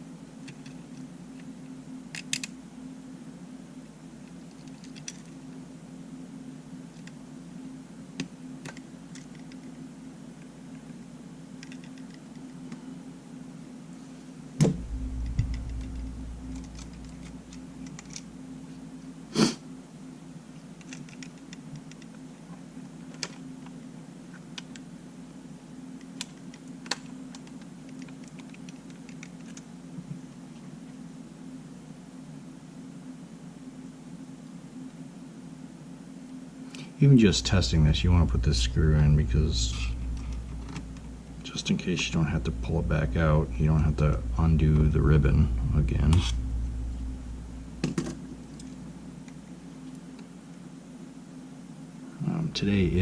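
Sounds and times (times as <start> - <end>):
steady low hum: 0.0 - 53.0
loud knock: 14.6 - 15.9
low rumble: 14.7 - 17.7, 37.5 - 41.4, 42.1 - 48.8.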